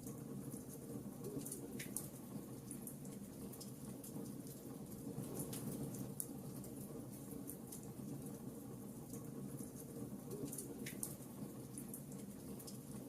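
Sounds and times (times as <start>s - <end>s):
fireplace fire crackling: 0.0s - 13.0s.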